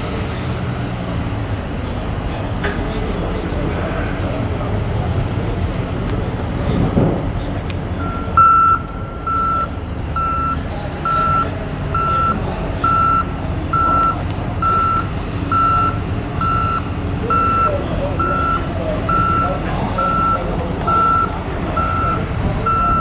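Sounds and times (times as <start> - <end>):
loader engine running: 0.0 - 23.0
backup alarm beeping: 8.0 - 23.0.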